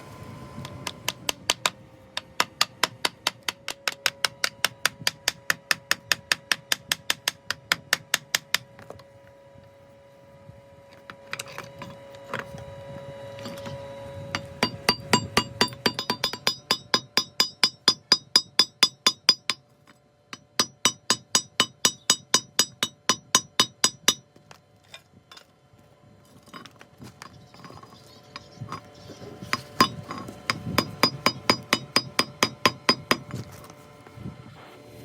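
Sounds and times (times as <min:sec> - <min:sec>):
hammer striking metal: 0:14.3 - 0:19.6, 0:20.3 - 0:24.2.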